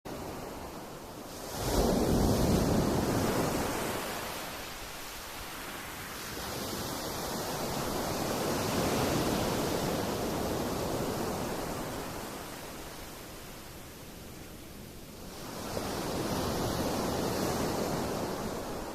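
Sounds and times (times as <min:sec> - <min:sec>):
waves washing onto pebbles: 0:01.3 - 0:12.6.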